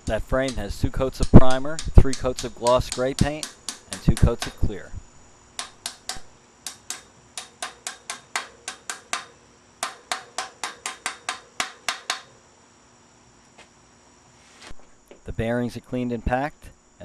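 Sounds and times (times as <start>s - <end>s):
hammer tapping metal: 0.0s - 4.8s, 5.6s - 12.4s.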